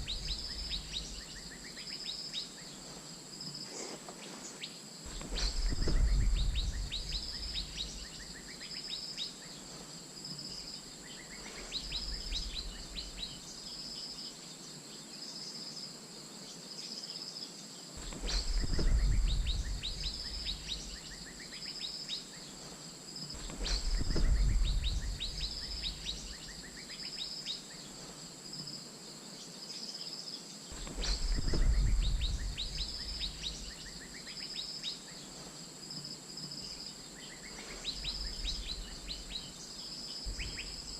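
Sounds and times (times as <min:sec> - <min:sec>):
bird calls: 0:00.0 - 0:14.4, 0:18.0 - 0:28.2, 0:30.7 - 0:35.6, 0:36.5 - 0:40.9
insect drone: 0:00.0 - 0:40.9
low rumbles: 0:05.1 - 0:08.3, 0:18.0 - 0:21.1, 0:23.4 - 0:26.5, 0:30.8 - 0:33.9.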